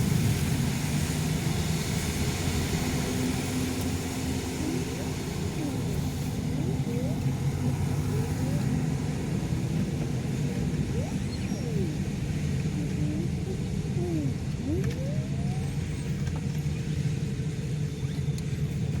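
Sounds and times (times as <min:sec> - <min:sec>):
car engine and road noise: 0:00.0 - 0:19.0
faint short gliding tones: 0:10.4 - 0:15.8.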